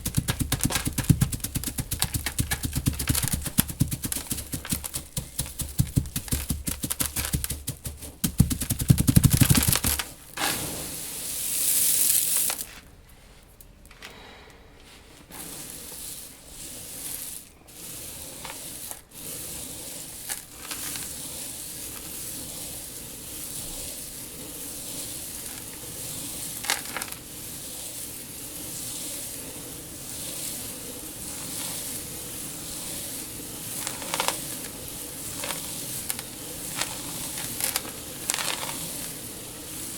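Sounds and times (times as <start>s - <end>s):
seeds swishing: 0.0s - 12.8s, 15.2s - 39.9s
crackling trickle of seeds: 0.0s - 12.9s, 15.3s - 39.9s
dry seeds clattering: 0.0s - 12.9s, 15.3s - 39.9s.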